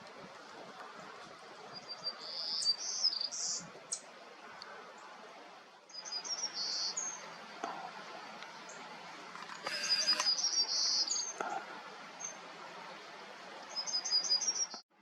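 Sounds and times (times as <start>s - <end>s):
warbler buzzy song: 1.7s - 4.1s, 5.9s - 7.5s, 9.6s - 11.4s, 13.7s - 14.8s.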